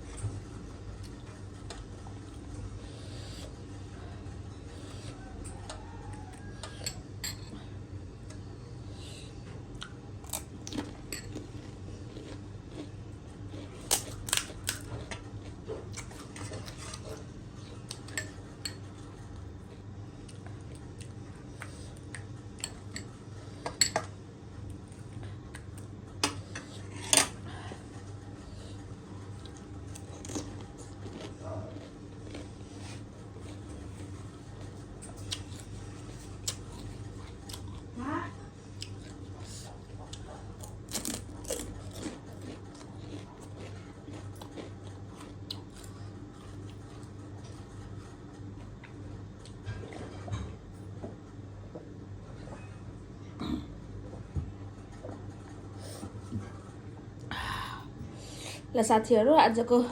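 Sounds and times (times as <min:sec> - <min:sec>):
steady low hum: 0:00.0 - 0:59.9
spoon clinking on dishes: 0:06.6 - 0:07.5.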